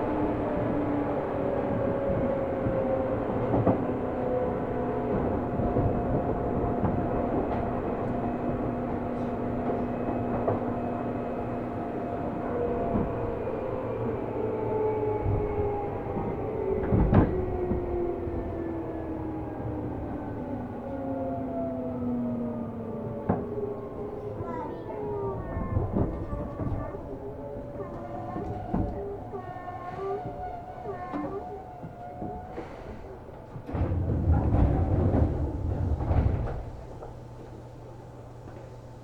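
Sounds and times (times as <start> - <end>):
train motor whine: 0.0 - 39.0
train wheels rumbling on rail: 0.0 - 39.0
rail knocks: 30.2 - 37.6.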